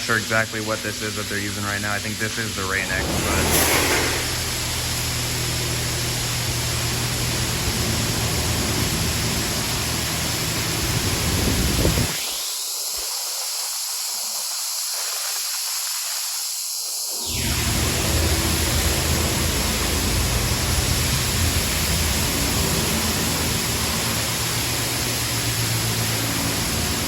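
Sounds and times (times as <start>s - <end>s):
low rumble: 2.6s - 5.4s.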